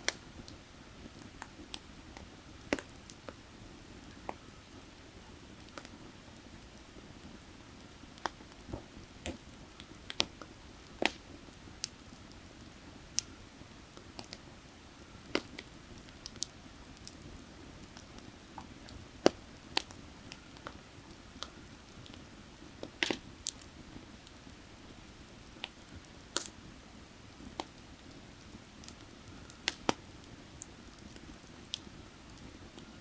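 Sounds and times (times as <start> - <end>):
fire crackling: 0.0 - 33.0
sharp pops of fire: 1.1 - 3.4, 8.2 - 12.0, 15.0 - 17.3, 21.4 - 24.6, 25.5 - 26.6, 27.4 - 32.9.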